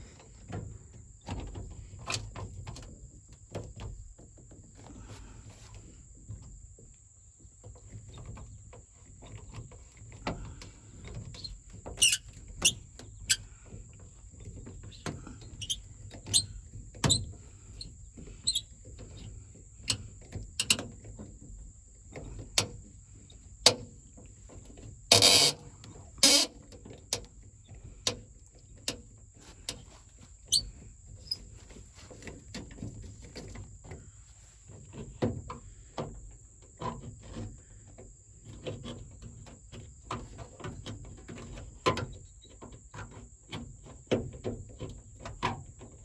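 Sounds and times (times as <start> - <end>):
metal parts and tools clinking: 26.2 - 26.5.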